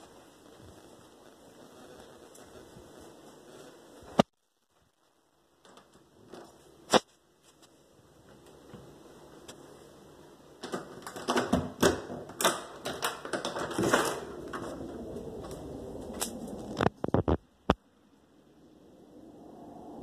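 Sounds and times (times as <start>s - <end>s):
steady hiss: 0.0s - 10.6s.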